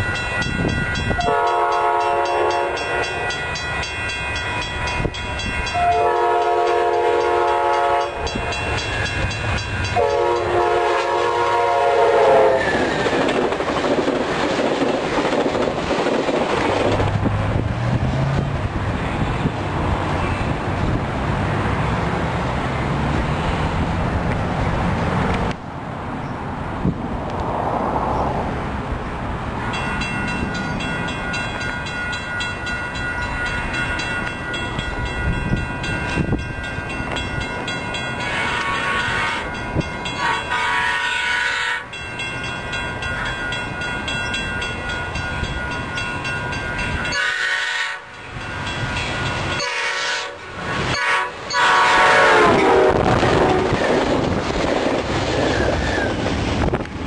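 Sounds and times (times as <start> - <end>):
train horn blasts: 1.1 - 3.3, 5.7 - 8.8, 9.8 - 12.9, 38.2 - 42.0, 47.0 - 48.2, 49.5 - 54.0
train wheels clattering: 12.4 - 18.6.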